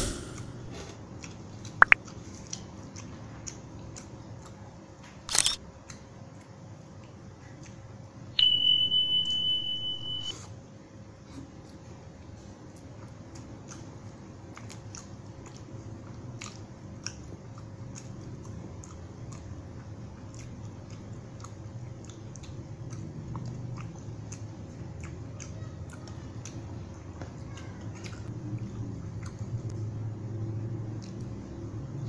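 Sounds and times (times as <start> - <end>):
low rumble: 0.0 - 0.7
person chewing with mouth smacking: 0.7 - 8.0, 11.3 - 29.8, 30.9 - 32.0
sharp wet mouth clicks: 1.2 - 4.5.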